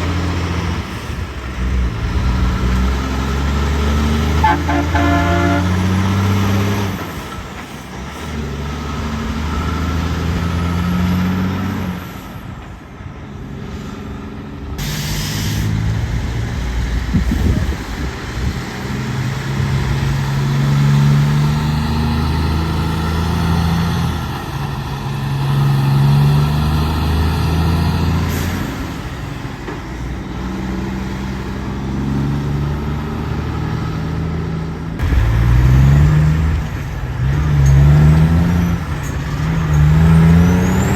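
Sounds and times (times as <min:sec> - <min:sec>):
diesel truck engines: 0:00.0 - 0:40.9
air brake hiss: 0:14.8 - 0:15.9.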